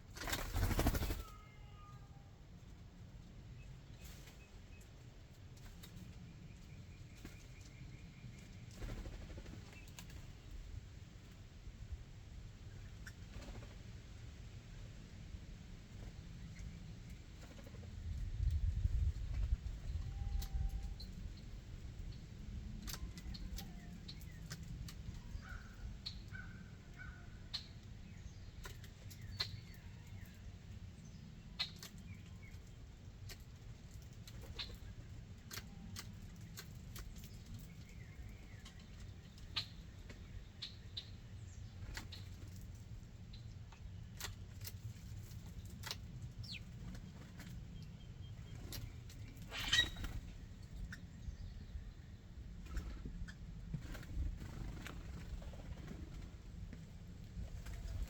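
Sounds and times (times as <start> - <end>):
birds pecking clicks and taps: 35.4 - 37.6
bird chirps: 49.4 - 50.2.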